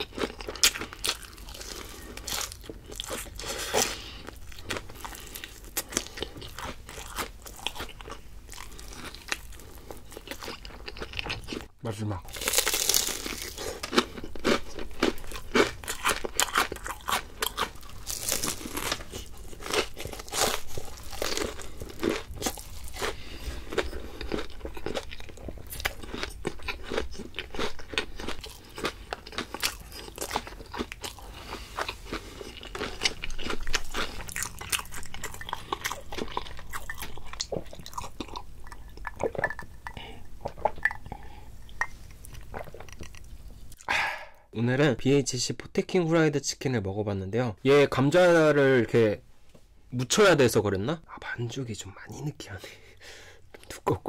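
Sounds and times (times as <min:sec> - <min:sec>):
crunching crispy fried food: 0:00.0 - 0:39.2.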